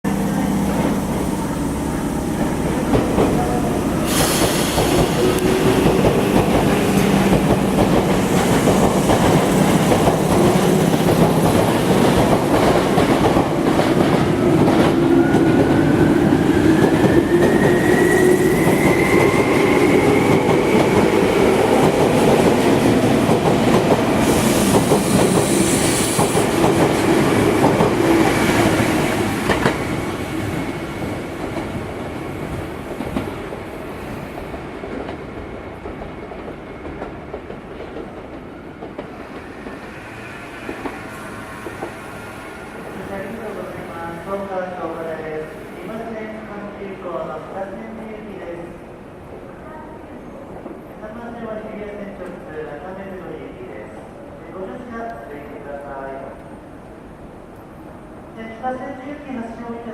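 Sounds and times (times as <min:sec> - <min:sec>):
train rumble: 0:00.1 - 0:43.7.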